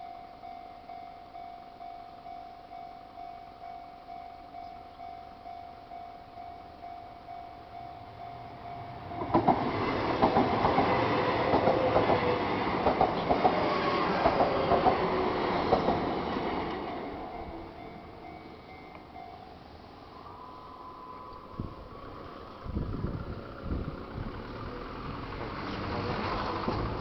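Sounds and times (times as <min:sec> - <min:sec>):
level crossing warning bell: 0:00.0 - 0:22.5
train wheels clacking: 0:08.7 - 0:19.2.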